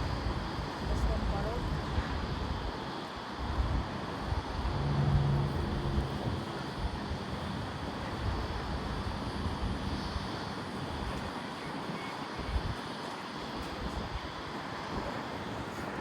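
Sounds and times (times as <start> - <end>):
wind buffeting microphone: 0.0 - 16.0
distant jet airliner rumble: 3.4 - 12.8.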